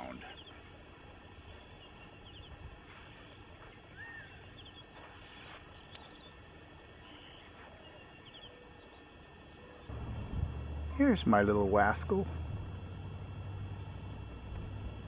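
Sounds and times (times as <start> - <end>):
birds chirping: 0.0 - 14.6
low steady rumble: 9.9 - 15.0.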